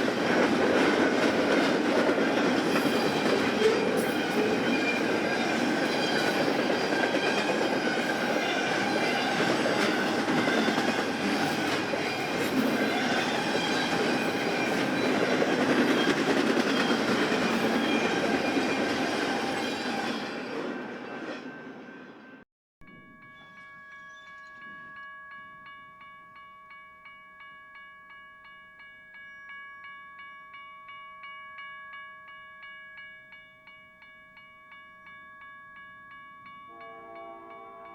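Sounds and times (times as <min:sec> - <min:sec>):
rail clicks: 0:00.0 - 0:21.3
train wheels rumbling on rail: 0:00.0 - 0:21.3.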